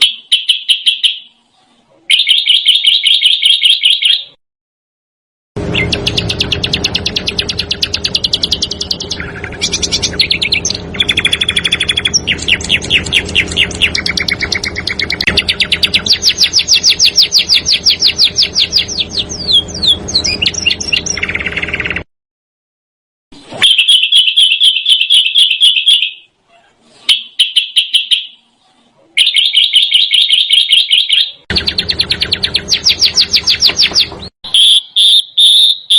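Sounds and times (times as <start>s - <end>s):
songbird trilling: 5.7s - 22.0s, 29.2s - 35.9s.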